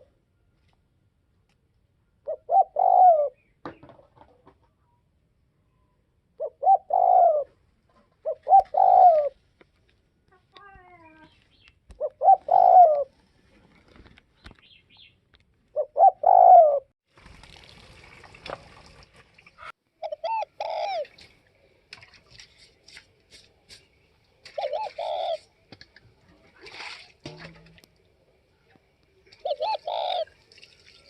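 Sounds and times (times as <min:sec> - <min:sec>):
dove cooing: 0:02.2 - 0:03.4, 0:06.4 - 0:09.4, 0:12.0 - 0:13.2, 0:15.7 - 0:16.9, 0:20.0 - 0:21.3, 0:24.5 - 0:25.6, 0:29.3 - 0:30.4.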